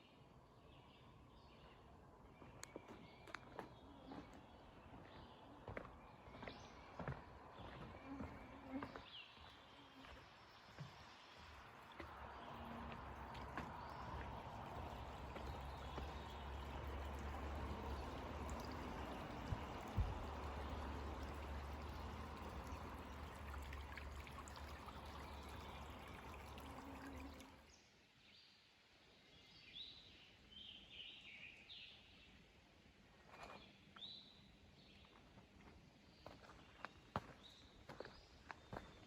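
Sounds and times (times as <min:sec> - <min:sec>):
running water: 0:07.6 - 0:27.7.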